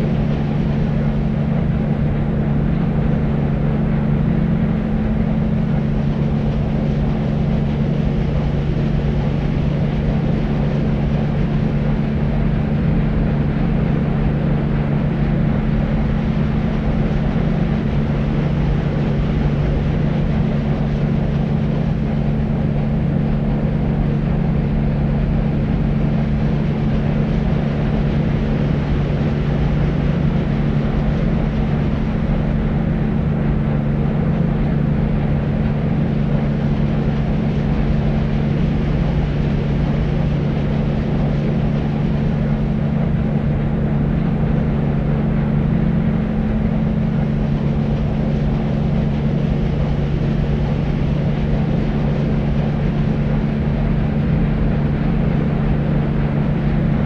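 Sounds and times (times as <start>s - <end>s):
constant low hum: 0.0s - 57.0s
low rumbling white noise hiss: 0.0s - 57.0s.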